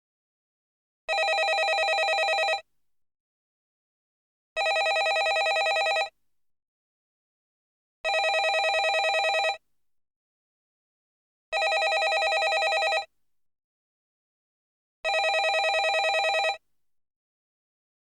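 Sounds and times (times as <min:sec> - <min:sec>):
landline telephone ringing: 0:01.1 - 0:02.6, 0:04.6 - 0:06.1, 0:08.1 - 0:09.6, 0:11.6 - 0:13.1, 0:15.1 - 0:16.6.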